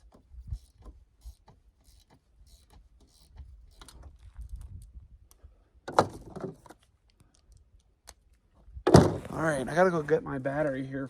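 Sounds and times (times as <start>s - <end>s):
tools and parts clicking: 0.0s - 5.4s
low thumps: 8.8s - 9.7s.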